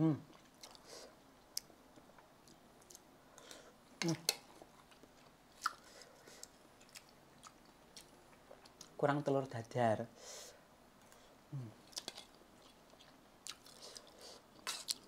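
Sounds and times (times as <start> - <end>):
chewing fried rice: 4.3 - 9.0, 11.8 - 15.0.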